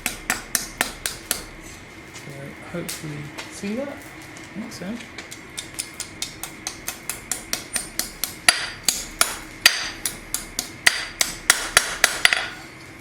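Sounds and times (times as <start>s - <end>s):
hammer striking hot steel on anvil: 0.0s - 1.5s, 6.2s - 12.6s.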